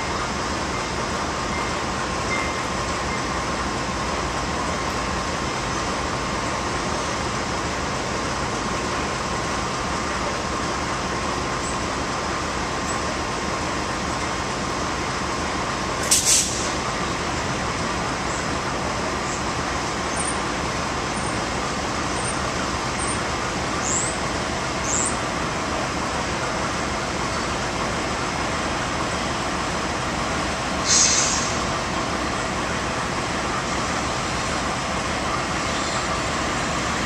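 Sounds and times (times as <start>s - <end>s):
train rolling rumble: 0.0s - 37.0s
short loud hiss: 16.0s - 16.8s, 30.8s - 31.7s.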